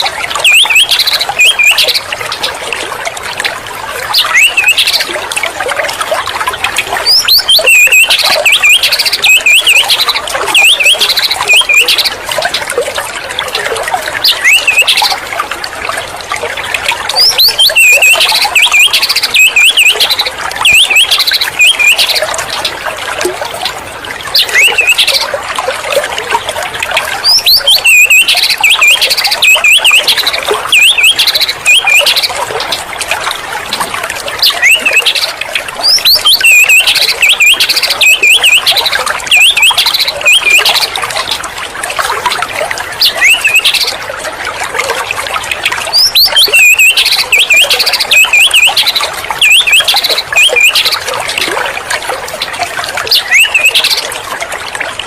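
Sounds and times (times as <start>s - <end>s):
songbird whistled song: 0.0s - 2.5s, 4.0s - 5.2s, 5.8s - 15.5s, 16.5s - 22.9s, 24.2s - 25.4s, 27.0s - 32.9s, 33.7s - 41.5s, 43.0s - 44.0s, 45.5s - 51.5s, 52.4s - 54.2s.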